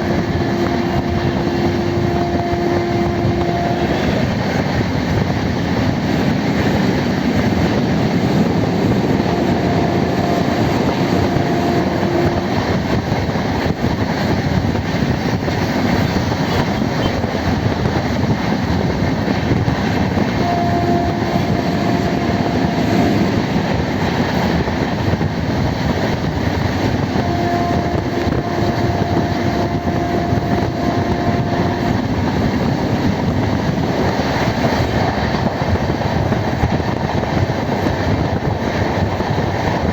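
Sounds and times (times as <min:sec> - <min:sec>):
pitched tone: 0:00.0 - 0:04.7, 0:08.4 - 0:13.0, 0:20.3 - 0:23.6, 0:27.0 - 0:32.6
train wheels on track: 0:00.0 - 0:39.9.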